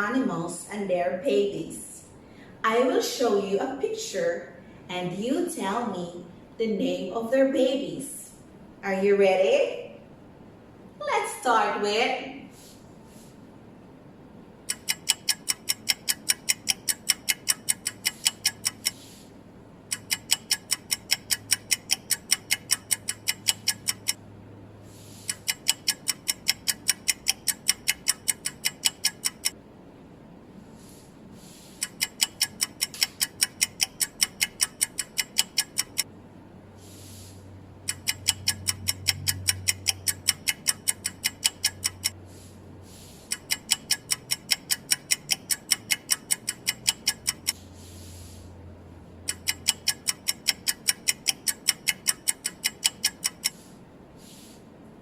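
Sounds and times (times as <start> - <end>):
clock ticking rapidly: 14.6 - 19.1, 19.8 - 24.2, 25.3 - 29.6, 31.8 - 36.1, 37.8 - 42.2, 43.2 - 47.6, 49.2 - 53.7.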